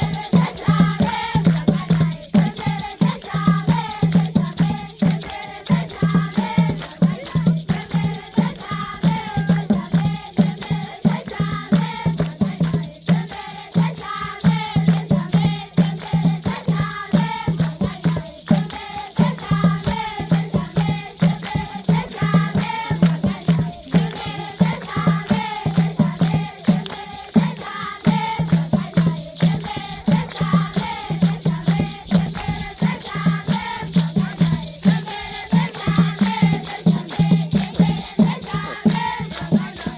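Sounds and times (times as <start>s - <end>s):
children singing: 0.0s - 39.9s
shaken rattles: 0.0s - 39.9s.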